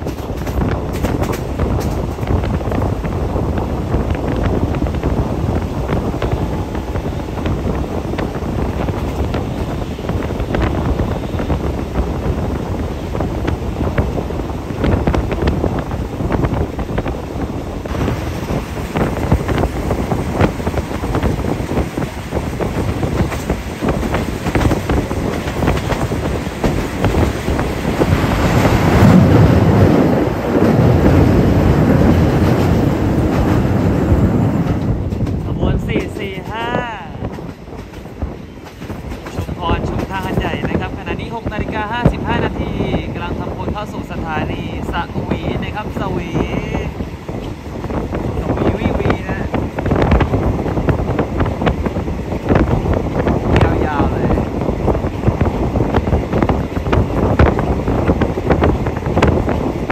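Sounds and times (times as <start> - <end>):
wheels clicking over rail joints: 0.0 - 2.9
train rumble: 0.0 - 59.9
wind noise from window: 0.0 - 59.9.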